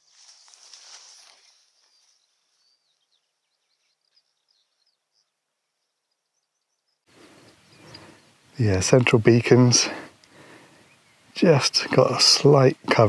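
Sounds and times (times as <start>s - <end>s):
faint birdsong chirps: 0.0s - 12.8s
outdoor noise hiss: 6.8s - 13.0s.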